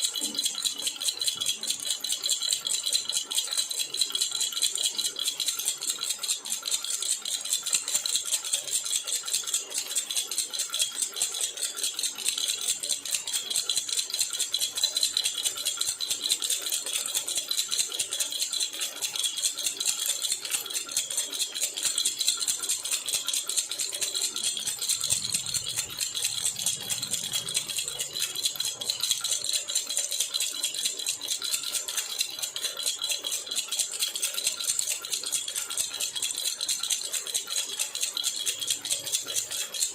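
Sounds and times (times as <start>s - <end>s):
metal baby rattle jingling: 11.3s - 39.9s.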